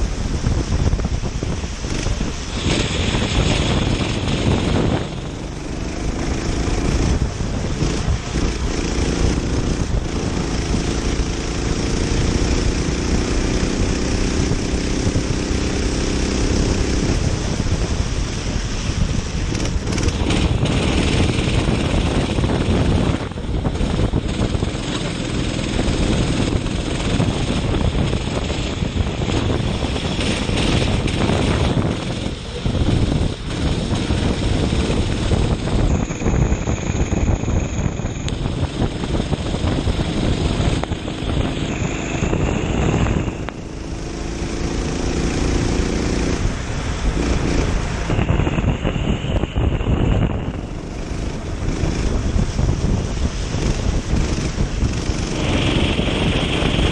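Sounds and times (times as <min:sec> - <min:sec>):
go-kart engine racing: 0:00.0 - 0:56.9
wet road noise: 0:00.0 - 0:56.9
wind buffeting microphone: 0:00.0 - 0:56.9.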